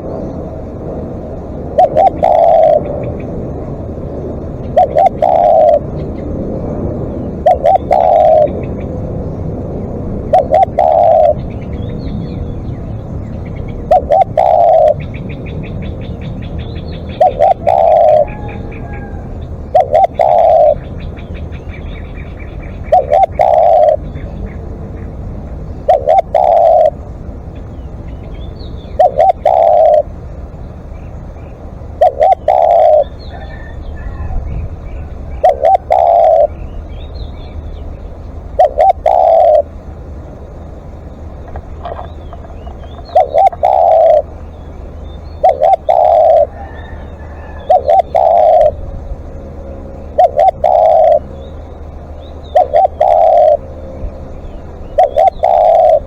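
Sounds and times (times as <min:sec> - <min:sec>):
dove cooing: 0:01.7 - 0:09.0, 0:10.0 - 0:12.1, 0:13.4 - 0:27.1, 0:28.8 - 0:30.2, 0:31.8 - 0:36.7, 0:38.2 - 0:39.9, 0:41.4 - 0:44.5, 0:45.4 - 0:51.5, 0:52.3 - 0:56.0
small birds chirping: 0:01.8 - 0:03.4, 0:04.4 - 0:56.0.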